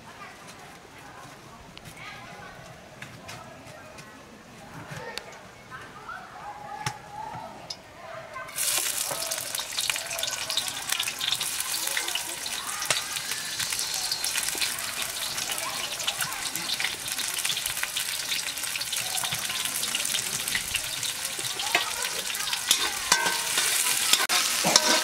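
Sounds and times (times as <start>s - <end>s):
onion sizzling in hot oil: 8.5s - 25.0s.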